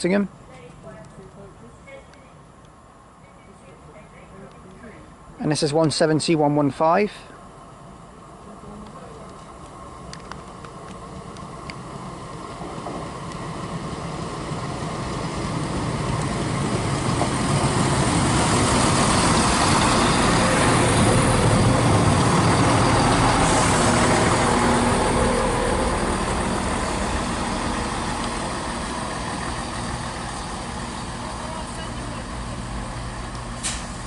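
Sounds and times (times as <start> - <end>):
diesel train engine: 0.0 - 34.0
train wheel noise: 7.7 - 34.0.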